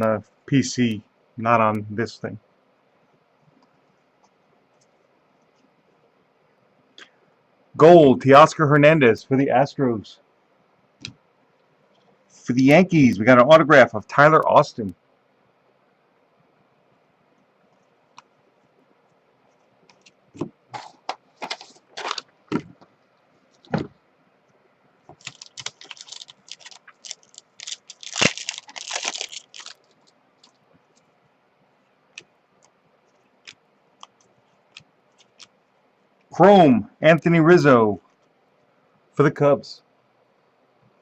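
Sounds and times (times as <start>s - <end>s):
wrappers crinkling and rustling: 20.0s - 22.8s, 25.1s - 31.2s, 33.0s - 35.6s
card packs clicking: 25.1s - 30.6s.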